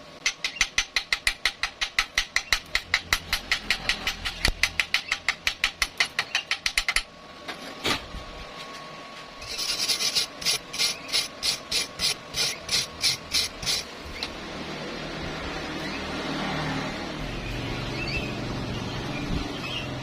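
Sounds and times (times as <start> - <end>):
rasping hand scraping strokes: 9.4 - 14.0.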